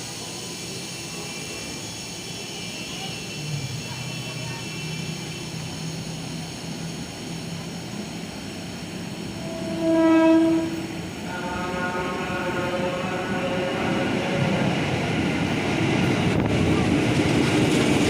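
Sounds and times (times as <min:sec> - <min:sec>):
train rumble: 0:00.0 - 0:18.0
electric train horn blast: 0:09.3 - 0:14.8.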